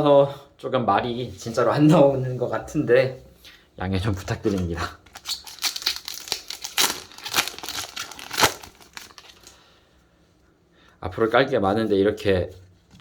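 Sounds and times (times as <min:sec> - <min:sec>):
foil wrapper crinkling: 0:04.4 - 0:09.6.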